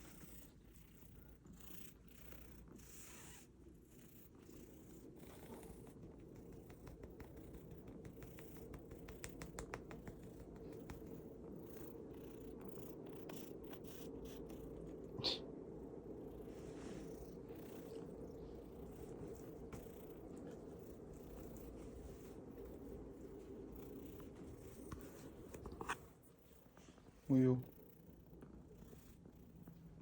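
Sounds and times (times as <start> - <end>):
cat purring: 0.0 - 30.0
faint clicks: 5.8 - 11.8.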